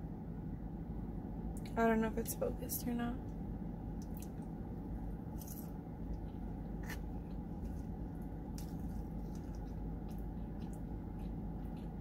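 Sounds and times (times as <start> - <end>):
low background hum: 0.0 - 12.0
wet squishy chewing: 6.2 - 12.0.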